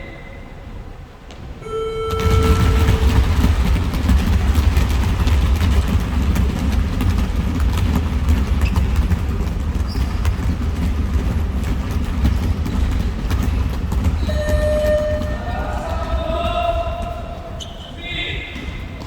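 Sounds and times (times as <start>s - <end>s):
steady low rumble: 0.0s - 17.6s
thin high tone: 1.6s - 3.2s
basketballs bouncing on gym floor: 1.6s - 19.0s.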